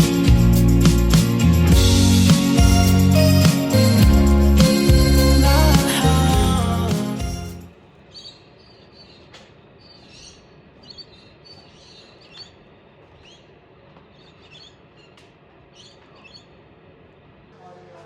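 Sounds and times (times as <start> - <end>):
background music: 0.0 - 7.7
birds chirping: 0.0 - 16.6.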